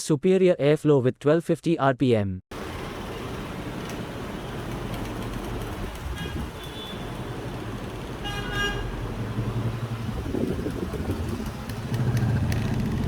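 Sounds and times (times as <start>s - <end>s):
road traffic rumble: 2.5s - 13.0s
vehicle horn toot: 6.1s - 7.2s, 8.2s - 9.0s.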